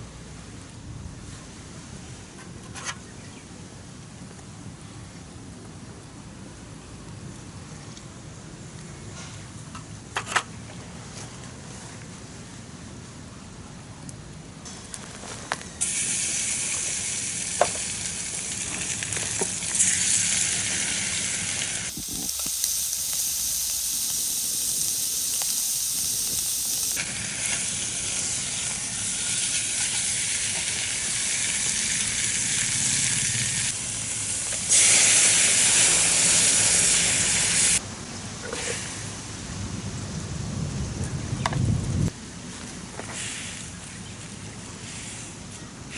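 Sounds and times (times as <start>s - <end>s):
food sizzling in a pan: 21.9s - 27.0s
pops and crackles: 21.9s - 27.0s.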